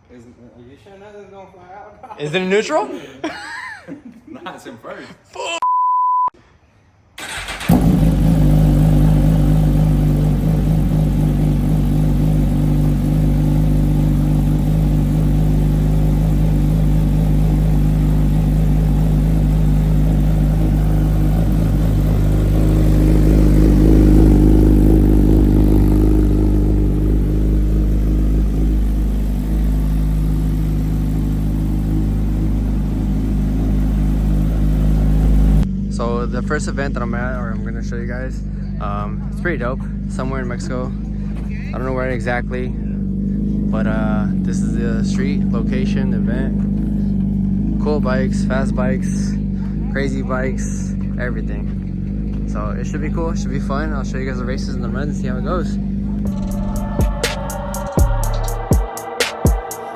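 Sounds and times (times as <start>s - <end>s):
motorcycle engine starting and idling: 7.2s - 58.9s.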